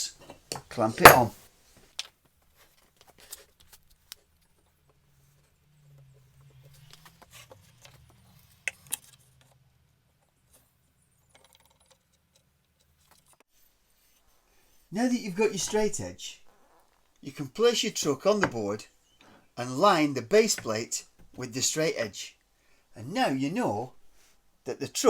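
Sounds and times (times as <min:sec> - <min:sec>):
soft rustle: 0:01.4 - 0:05.6.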